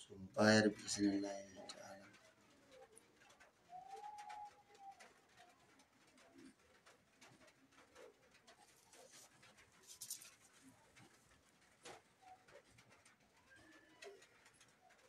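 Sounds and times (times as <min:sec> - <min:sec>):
faint bird cooing: 0:00.0 - 0:15.0
short rustle: 0:08.6 - 0:13.0.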